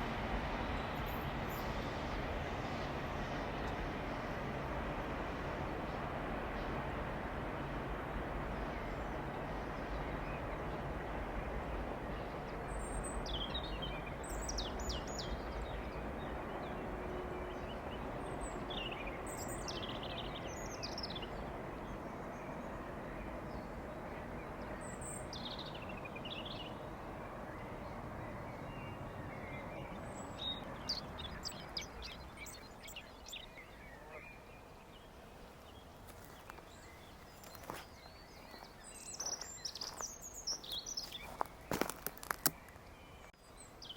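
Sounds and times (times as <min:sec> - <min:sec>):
train rumbling past: 0:00.0 - 0:43.9
small birds chirping: 0:23.5 - 0:43.9.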